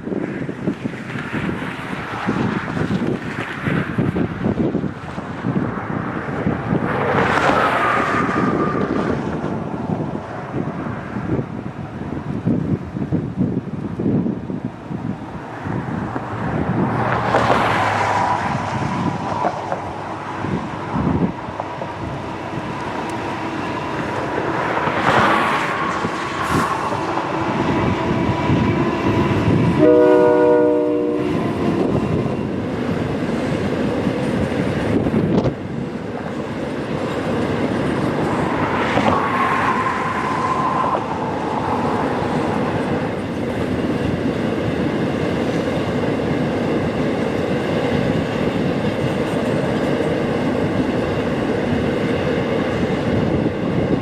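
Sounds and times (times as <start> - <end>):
train wheels rumbling and clacking: 0.0 - 54.0
train horn: 27.2 - 32.4.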